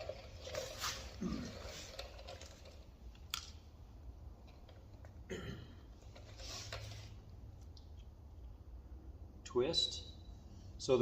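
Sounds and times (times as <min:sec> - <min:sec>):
scraping and rustling: 0:00.0 - 0:03.0, 0:06.0 - 0:07.3.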